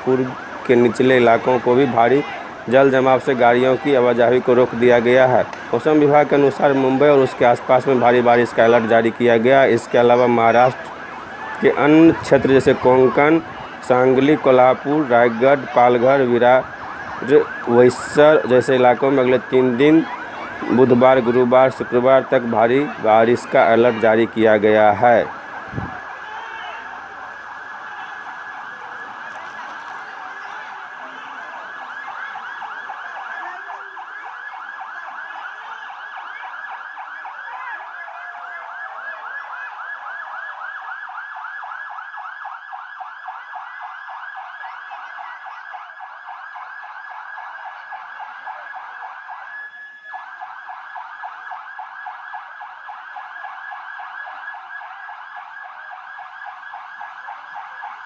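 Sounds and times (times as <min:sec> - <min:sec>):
siren warbling: 0:00.0 - 0:26.0.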